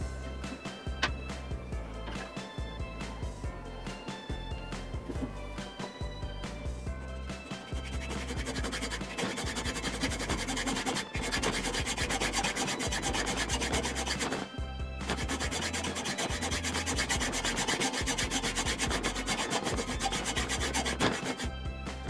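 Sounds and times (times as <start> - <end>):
rasp scraping turning wood: 7.1 - 22.0.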